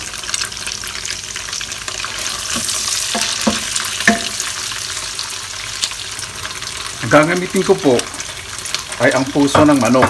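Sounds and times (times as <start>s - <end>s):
food sizzling in oil: 0.0s - 10.0s
spoon knocking on pot: 3.1s - 4.4s.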